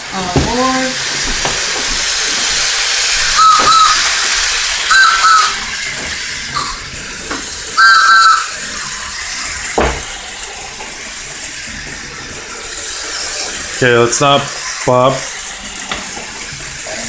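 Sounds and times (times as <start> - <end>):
steam hissing: 0.0 - 17.0
two-note train whistle toots: 3.2 - 6.9, 7.8 - 9.0.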